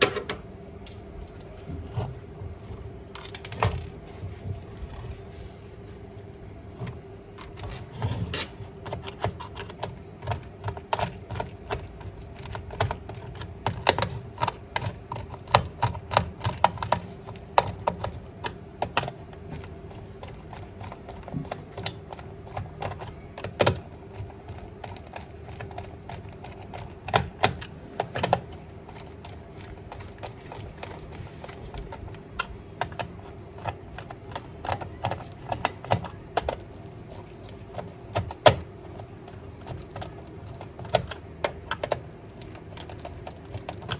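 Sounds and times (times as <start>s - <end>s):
faint steady hum: 0.0s - 43.9s
plastic toy parts clicking: 9.5s - 43.9s.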